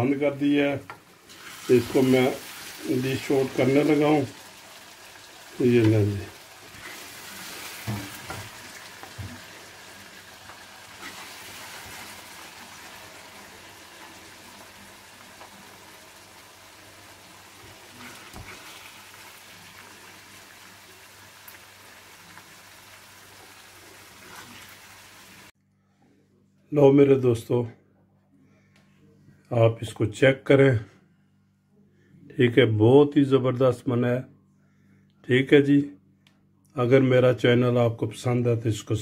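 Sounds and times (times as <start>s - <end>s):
curry sizzling in hot oil: 1.0s - 25.5s.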